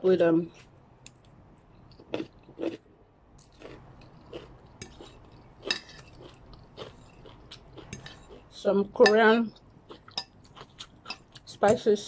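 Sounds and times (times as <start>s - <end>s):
chewing crunchy noodles: 1.7s - 8.6s, 9.5s - 11.5s.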